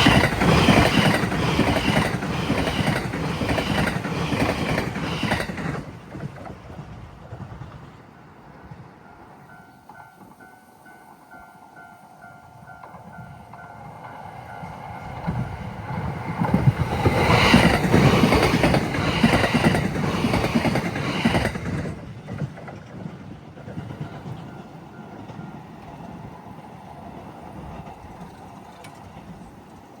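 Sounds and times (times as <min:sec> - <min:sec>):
train wheels clattering over rail joints: 0:00.0 - 0:07.9, 0:15.1 - 0:26.2.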